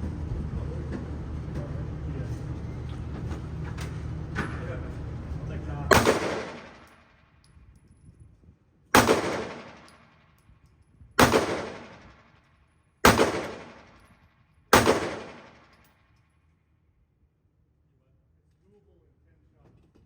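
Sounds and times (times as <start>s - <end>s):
handgun shots echoing: 5.9s - 7.0s, 9.0s - 10.2s, 11.2s - 12.2s, 13.0s - 14.1s, 14.7s - 15.9s.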